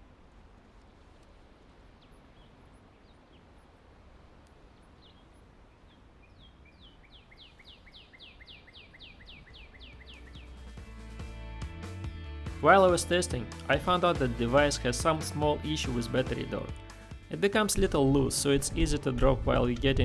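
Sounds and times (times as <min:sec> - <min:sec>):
low background hiss: 0:00.0 - 0:10.7
small birds chirping: 0:00.7 - 0:10.9
songbird repeated down-slurred notes: 0:05.9 - 0:10.8.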